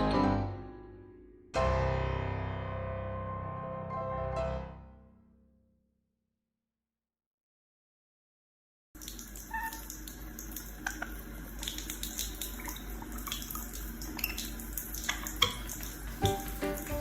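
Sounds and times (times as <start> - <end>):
small splashes and clicks: 9.0 - 17.0
water running from a tap: 9.0 - 17.0.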